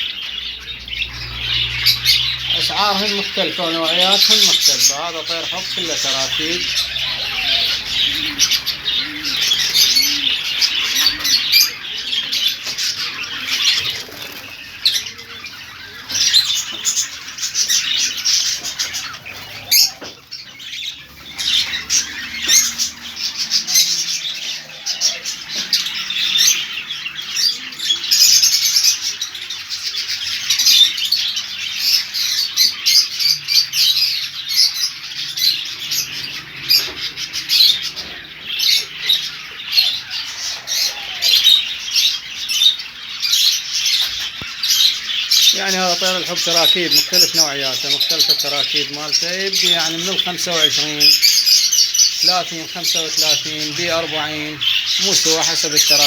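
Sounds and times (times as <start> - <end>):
lovebirds chirping and squawking: 0.0 - 56.0.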